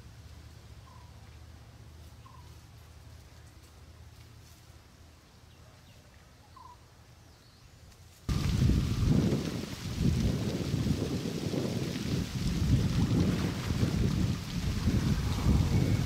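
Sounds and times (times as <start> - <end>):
faint bird calls: 0.8 - 1.2, 2.2 - 2.6, 5.5 - 7.7
low steady rumble: 12.0 - 16.0.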